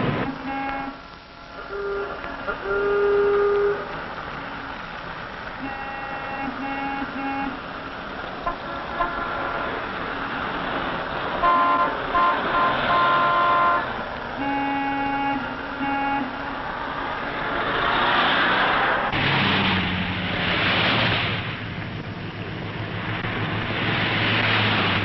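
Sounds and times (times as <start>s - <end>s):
traffic hum: 0.0s - 25.0s
car horns honking: 0.1s - 1.1s, 1.7s - 4.0s, 5.6s - 7.7s, 8.4s - 10.0s, 11.3s - 16.6s.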